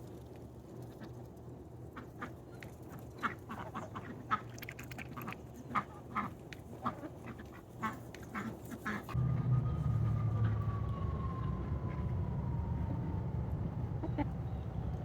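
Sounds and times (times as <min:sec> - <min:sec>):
ducks quacking: 0:03.2 - 0:04.5, 0:05.1 - 0:09.2
low hum: 0:09.1 - 0:15.0
faint falling tone: 0:09.2 - 0:15.0.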